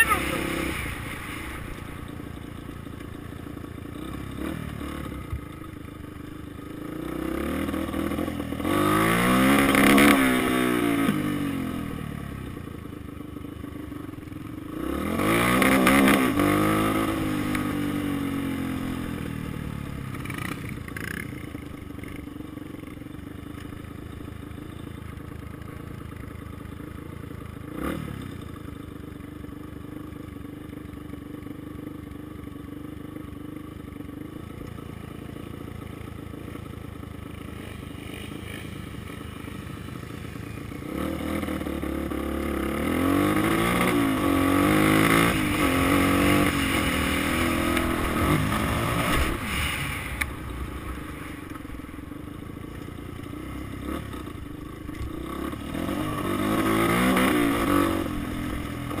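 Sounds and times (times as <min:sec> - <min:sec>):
dirt bike engine revving: 0:00.0 - 0:02.7, 0:03.9 - 0:05.3, 0:06.8 - 0:11.9, 0:14.7 - 0:19.3, 0:37.4 - 0:59.0.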